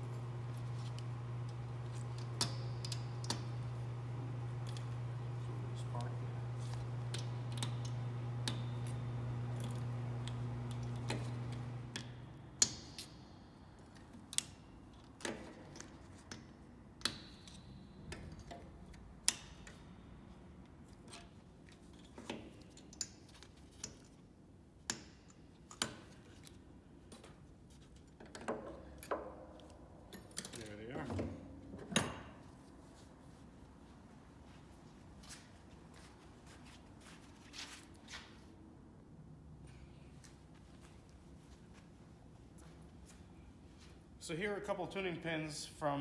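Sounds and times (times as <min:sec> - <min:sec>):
steady low hum: 0:00.0 - 0:15.8.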